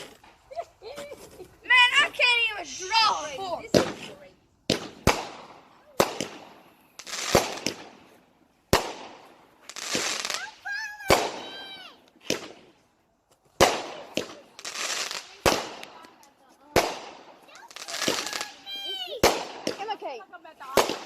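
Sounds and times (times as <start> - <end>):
fireworks bangs with crackling hiss: 0.0 - 21.0.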